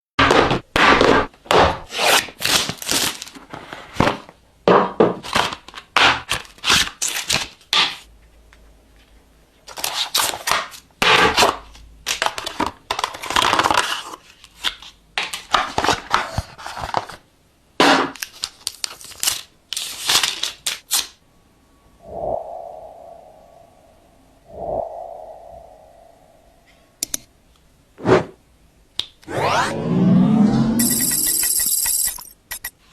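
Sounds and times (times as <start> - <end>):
packaging tearing and crinkling: 2.1 - 3.4, 18.2 - 21.1.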